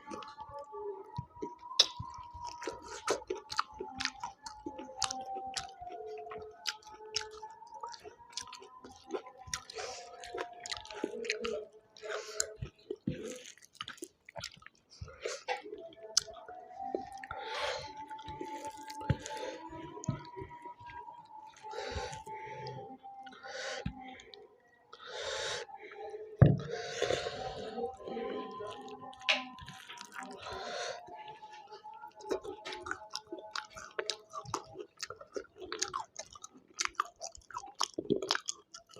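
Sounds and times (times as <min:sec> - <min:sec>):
person chewing and smacking: 0:00.0 - 0:25.8, 0:26.4 - 0:38.9
wet clicks and squishes: 0:01.5 - 0:02.6.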